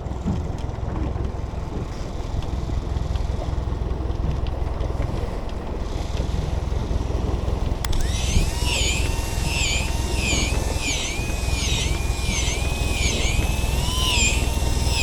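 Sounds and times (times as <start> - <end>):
boat engine rumble: 0.0 - 15.0
wind on microphone: 5.8 - 15.0
sharp click: 7.8 - 15.0
warbling electronic tone: 7.9 - 15.0.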